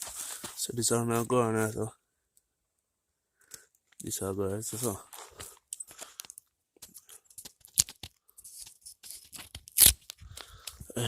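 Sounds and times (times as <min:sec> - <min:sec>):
tearing sounds: 0:07.7 - 0:10.2.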